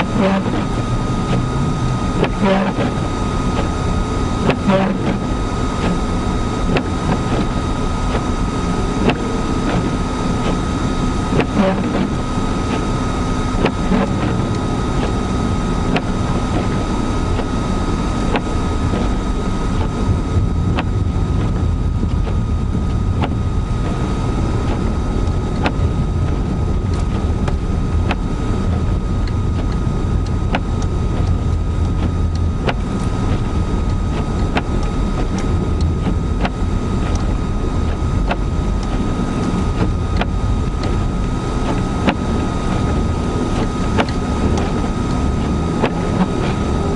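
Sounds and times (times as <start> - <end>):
car cabin rumble: 0.0 - 46.9
thin steady whine: 0.0 - 46.9.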